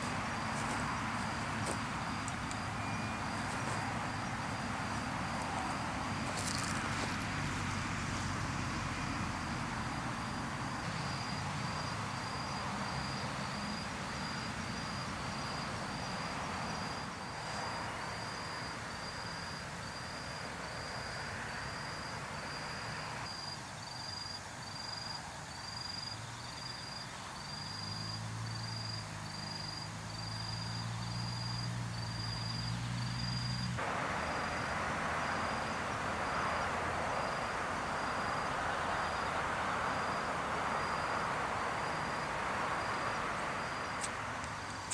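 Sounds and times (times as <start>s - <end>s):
steady hiss: 0.0s - 20.7s, 33.7s - 44.9s
cricket chirping: 0.0s - 44.9s.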